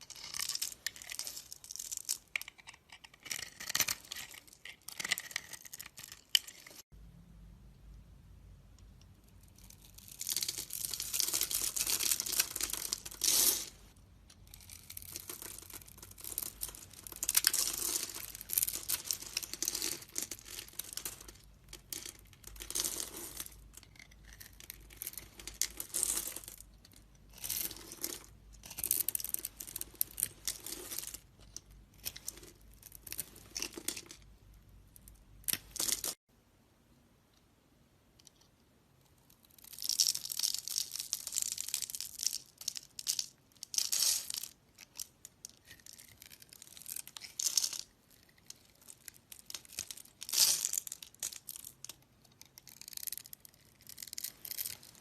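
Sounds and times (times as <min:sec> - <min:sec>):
knife scraping soap: 0:02.3 - 0:06.6.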